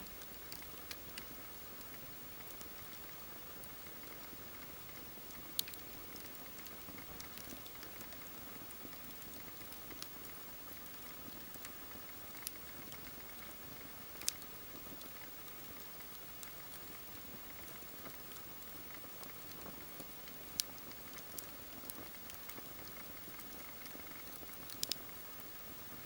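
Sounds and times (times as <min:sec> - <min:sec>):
campfire crackling: 0:00.0 - 0:03.0, 0:03.6 - 0:25.2.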